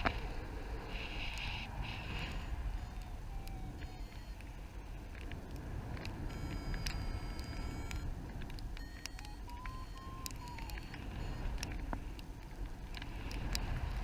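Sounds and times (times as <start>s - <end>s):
wind rushing over microphone: 0.0s - 14.0s
faint electronic beeps: 1.4s - 5.1s, 6.2s - 8.2s, 8.8s - 11.9s
tone stepping up and down: 2.4s - 4.4s, 6.3s - 8.1s, 8.8s - 11.8s
sharp ticks: 5.2s - 13.7s.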